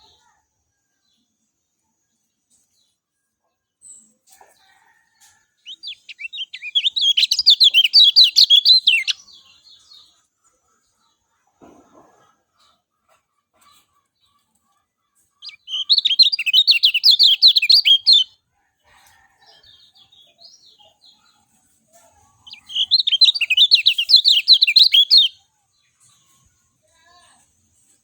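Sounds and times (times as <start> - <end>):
faint bird chirps: 3.8 - 10.2, 15.4 - 18.3, 19.1 - 25.4
white-eye singing chattering song: 5.6 - 9.3, 15.4 - 18.3, 22.4 - 25.4.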